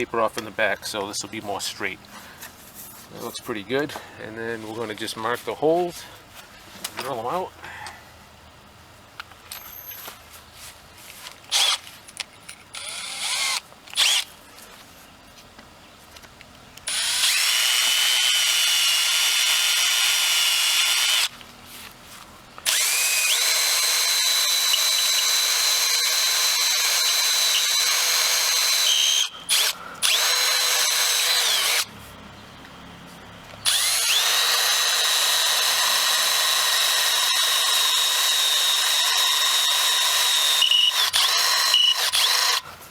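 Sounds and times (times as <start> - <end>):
power drill whining: 11.5 - 11.9, 12.7 - 14.3, 16.8 - 21.3, 22.6 - 31.9, 33.6 - 42.6.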